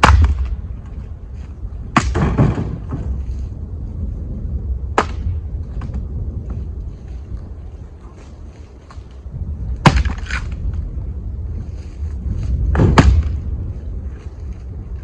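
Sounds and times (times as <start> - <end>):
sharp wooden knocks: 0.0 - 0.6, 2.0 - 3.1
wind rumble on microphone: 0.0 - 15.0
wood clattering tumble: 1.4 - 3.5.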